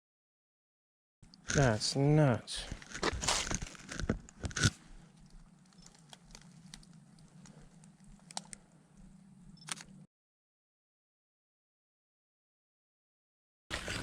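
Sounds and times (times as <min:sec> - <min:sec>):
dry leaves crunching underfoot: 0:02.8 - 0:04.0.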